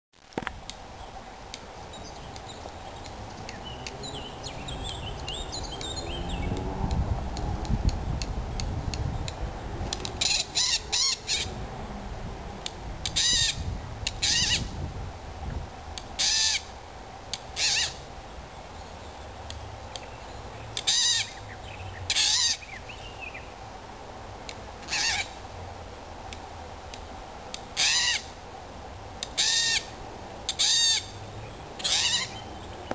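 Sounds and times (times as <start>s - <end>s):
wind rumble on microphone: 0.4s - 16.2s
bird harsh rasping calls: 10.2s - 11.5s, 13.1s - 14.7s, 16.2s - 16.7s, 17.6s - 18.0s, 20.7s - 23.4s, 24.8s - 25.4s, 27.8s - 28.4s, 29.2s - 31.2s, 31.8s - 32.8s.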